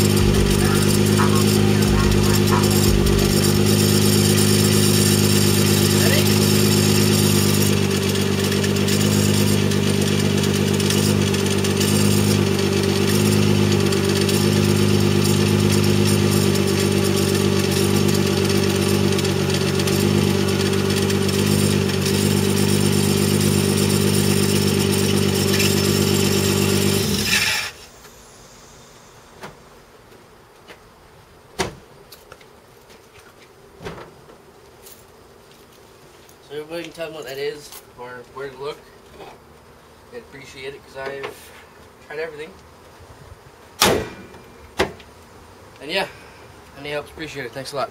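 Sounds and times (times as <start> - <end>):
car engine idling: 0.0 - 29.8.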